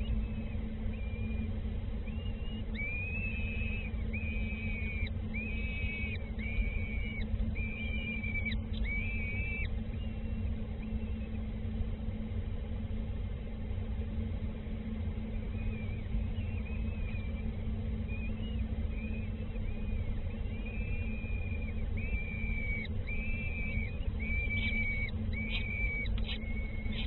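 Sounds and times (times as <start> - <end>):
bird whistling call: 0.0 - 1.4, 2.0 - 11.4, 18.1 - 27.0
steady low hum: 0.0 - 27.0.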